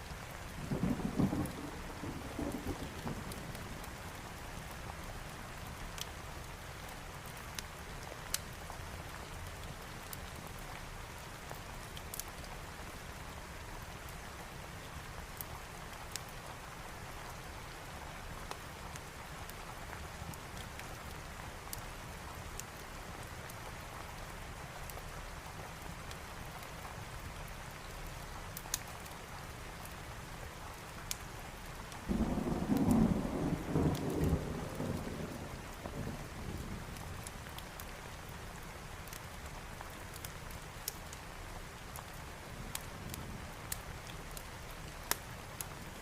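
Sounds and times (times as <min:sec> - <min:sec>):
heavy rain: 0:00.0 - 0:46.0
thunder rumbling: 0:00.7 - 0:03.5, 0:32.1 - 0:36.9
faint crackles: 0:39.0 - 0:46.0.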